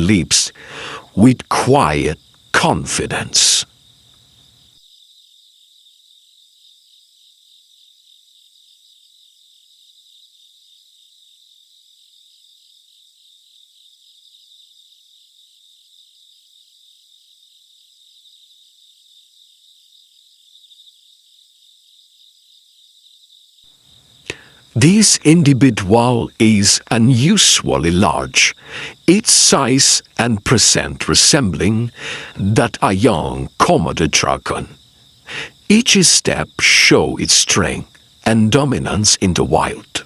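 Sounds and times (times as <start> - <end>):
insects trilling: 0.0 - 40.0.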